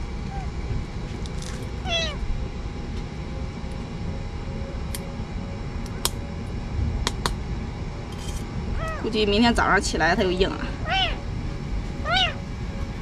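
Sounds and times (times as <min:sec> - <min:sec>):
steady low rumble: 0:00.0 - 0:13.0
kitten meowing: 0:01.8 - 0:02.2, 0:08.8 - 0:09.1, 0:10.8 - 0:11.2, 0:12.0 - 0:12.4.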